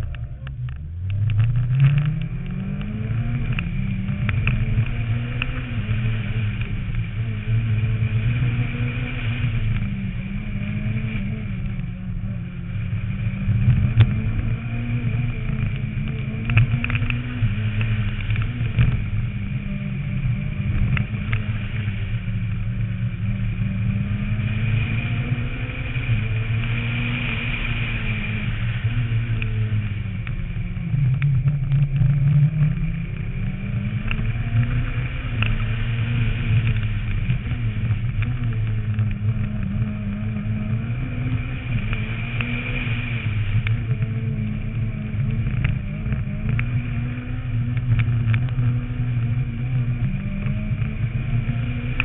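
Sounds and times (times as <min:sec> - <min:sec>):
rally car engine revving: 0:00.0 - 0:52.0.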